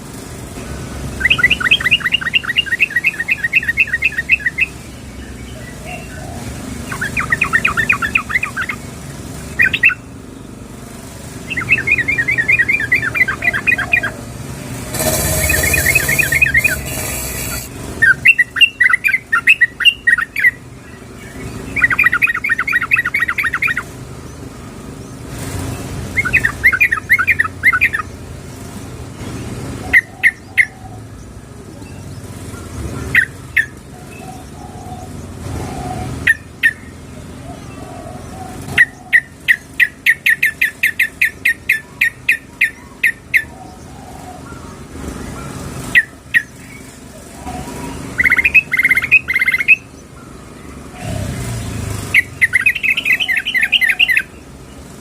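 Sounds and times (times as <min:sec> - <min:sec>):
bulbul calling: 0:01.2 - 0:10.1, 0:11.4 - 0:24.0, 0:26.1 - 0:28.2, 0:32.6 - 0:44.8, 0:45.4 - 0:50.2, 0:52.0 - 0:54.5.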